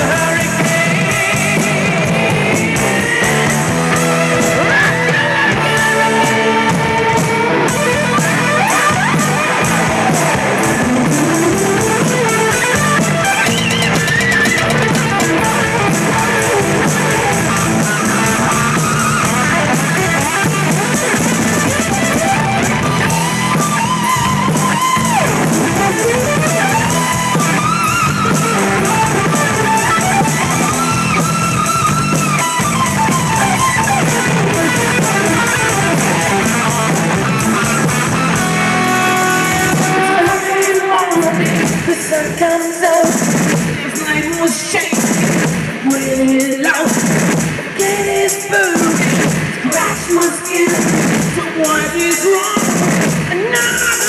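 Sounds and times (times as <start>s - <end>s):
lead electric guitar solo: 0.0s - 42.7s
drum kit beat: 0.0s - 54.0s
rhythm guitar: 0.0s - 54.0s.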